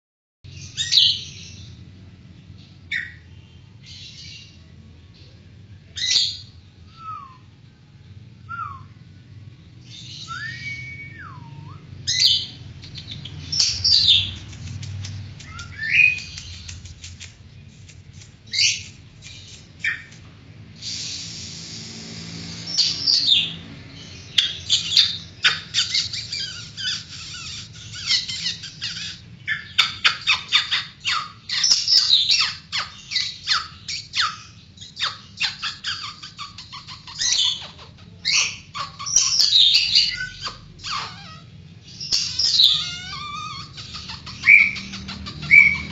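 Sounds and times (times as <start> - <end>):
bird singing varied song: 8.4 - 20.2, 20.8 - 45.9
bird harsh squawk: 38.3 - 45.9.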